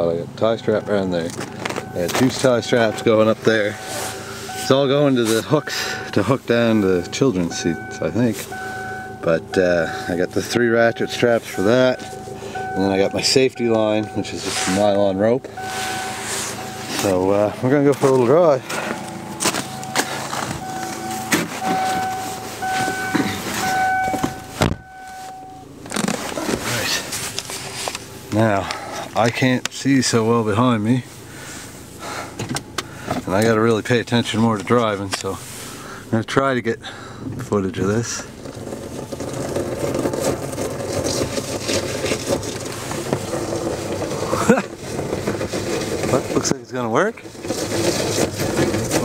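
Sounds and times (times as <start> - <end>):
truck engine running: 0.0 - 49.0
electronic warning tone: 1.8 - 25.7.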